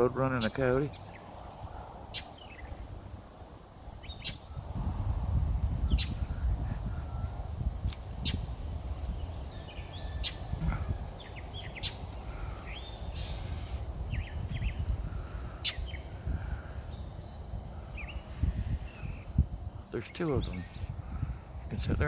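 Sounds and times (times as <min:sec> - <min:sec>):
bird scolding calls: 0:03.6 - 0:04.6, 0:09.3 - 0:19.3.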